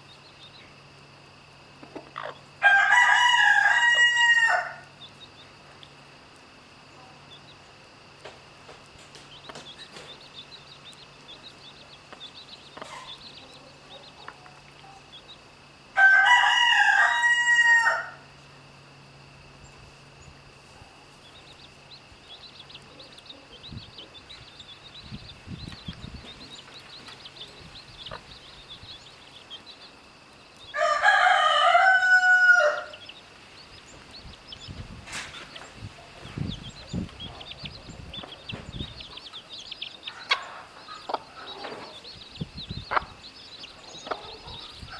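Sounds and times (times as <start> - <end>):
rooster crowing: 2.6 - 4.9, 15.9 - 18.3, 30.7 - 33.2
faint high chirping: 9.2 - 15.5, 19.6 - 44.9.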